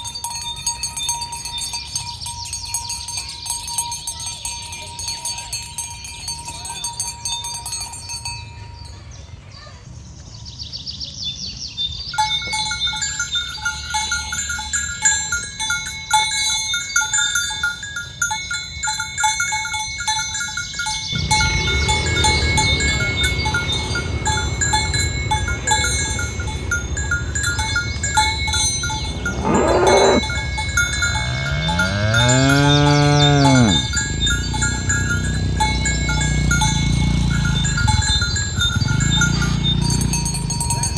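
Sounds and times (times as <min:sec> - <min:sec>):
cowbells clanking: 0:00.0 - 0:09.2, 0:12.1 - 0:40.9
cow mooing: 0:28.8 - 0:37.5.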